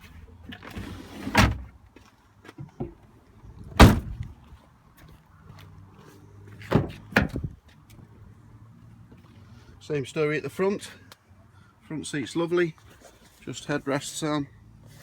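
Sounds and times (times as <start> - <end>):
car doors shutting: 3.8 - 4.2.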